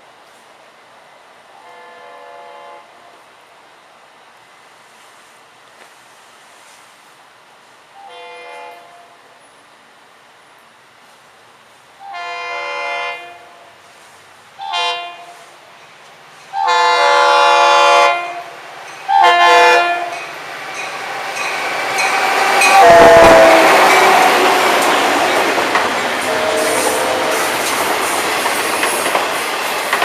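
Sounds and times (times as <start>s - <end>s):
train passing: 0.0s - 30.0s
locomotive horn blasts: 1.6s - 3.0s, 8.0s - 9.2s, 12.0s - 13.6s, 14.6s - 15.6s, 16.5s - 18.5s, 19.1s - 20.2s, 22.5s - 24.7s, 26.2s - 27.7s
wheels on rails: 20.0s - 30.0s.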